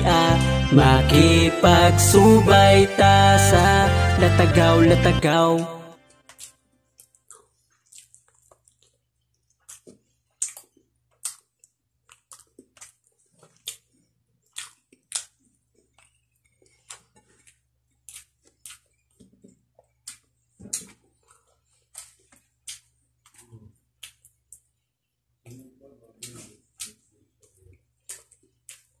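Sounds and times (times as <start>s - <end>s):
lip smacks and chewing: 6.3s - 25.6s, 26.2s - 29.0s.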